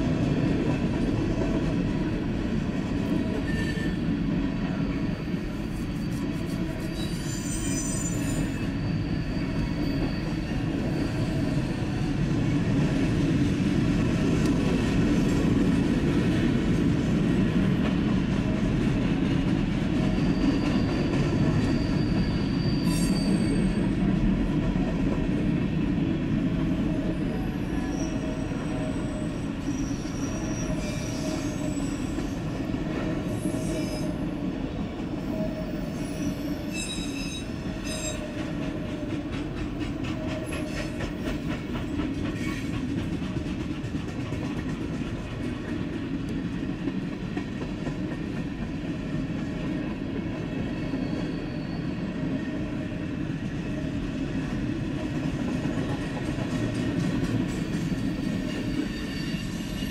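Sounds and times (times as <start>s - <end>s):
train wheels rumbling on rails: 0.0s - 59.9s
high-pitched wheel squeal: 3.4s - 12.0s, 20.1s - 24.0s, 27.2s - 32.5s, 35.2s - 38.4s, 50.7s - 52.1s, 58.0s - 59.9s.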